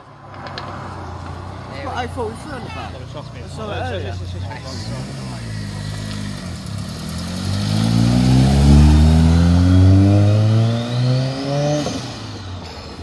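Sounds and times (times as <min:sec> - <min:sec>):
car engine accelerating hard: 0:04.4 - 0:12.4.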